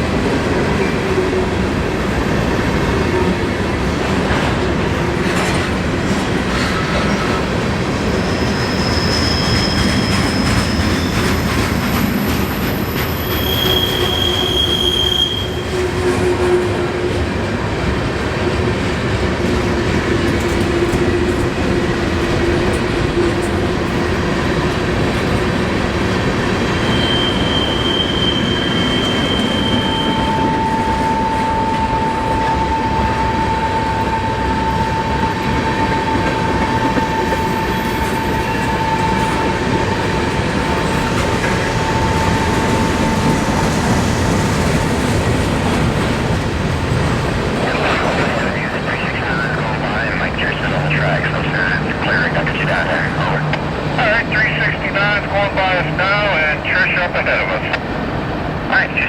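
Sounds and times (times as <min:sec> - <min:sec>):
train wheels rumbling on rail: 0:00.0 - 0:59.0
wheel squeals: 0:08.2 - 0:16.6, 0:26.7 - 0:31.5.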